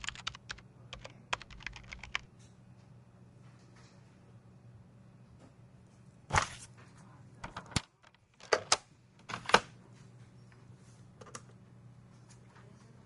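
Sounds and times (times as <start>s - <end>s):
keyboard key presses: 0.0s - 2.3s
steady low hum: 0.0s - 13.0s.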